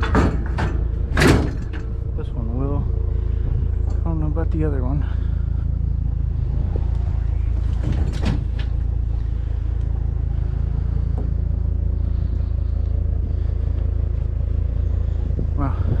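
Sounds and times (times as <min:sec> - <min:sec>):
scrap knocking and clattering: 0:00.0 - 0:02.1, 0:06.8 - 0:09.0
truck engine idling: 0:00.0 - 0:16.0.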